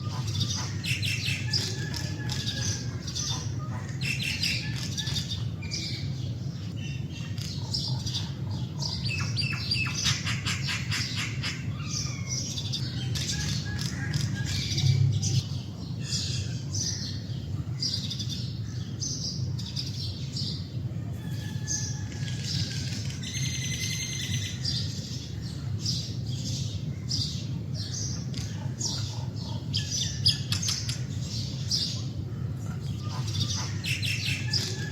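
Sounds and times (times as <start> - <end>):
mynas calling: 0.0 - 6.1, 28.3 - 34.9.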